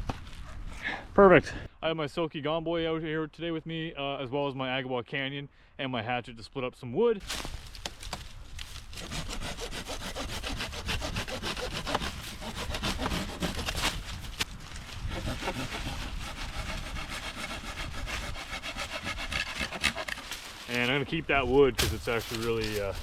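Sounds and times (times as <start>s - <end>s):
hand saw cutting wood: 8.9s - 14.4s, 15.0s - 21.0s.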